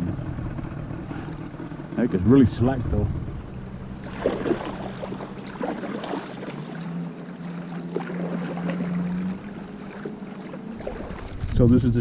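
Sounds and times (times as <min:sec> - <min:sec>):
low steady hum: 0:00.0 - 0:12.0
water splashing against kayak hull: 0:03.5 - 0:11.7.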